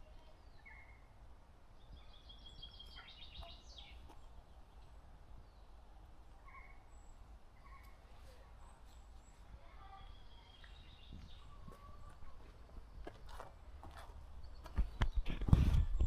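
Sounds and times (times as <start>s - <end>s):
songbird calls: 0.0s - 5.8s, 6.4s - 12.3s.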